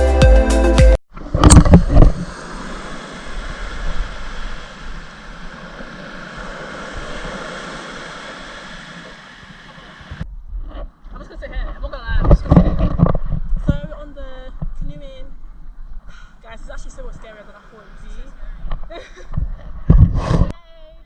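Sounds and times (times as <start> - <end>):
background music: 0.0 - 1.0
steady rushing noise: 1.1 - 14.1.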